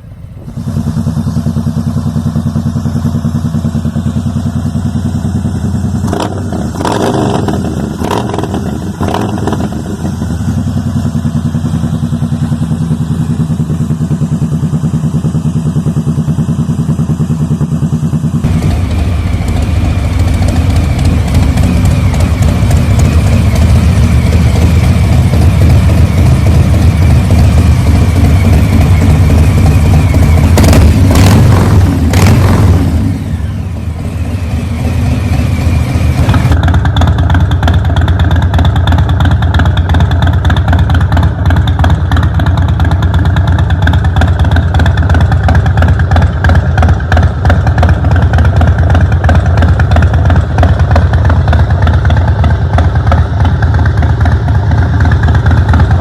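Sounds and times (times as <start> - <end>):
motorcycle engine running loudly: 0.0 - 56.0
sharp exhaust cracks: 18.5 - 33.2.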